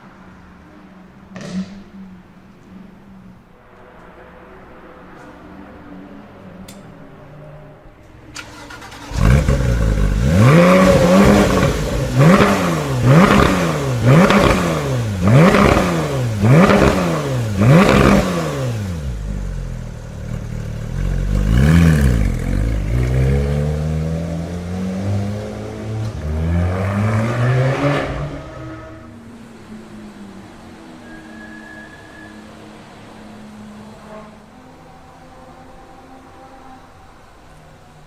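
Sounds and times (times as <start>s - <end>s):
car engine starting and revving: 8.2s - 30.9s.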